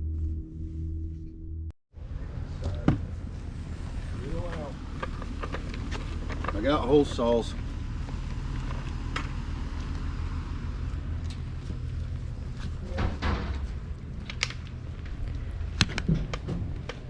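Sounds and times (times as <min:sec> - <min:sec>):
steady low rumble: 0:00.0 - 0:17.0
sharp clicks and knocks: 0:12.9 - 0:17.0.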